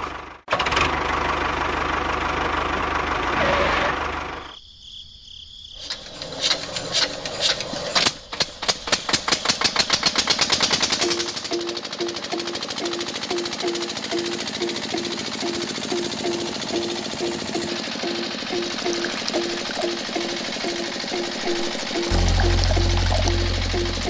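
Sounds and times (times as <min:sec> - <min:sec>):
tractor engine chugging: 0:08.3 - 0:24.0.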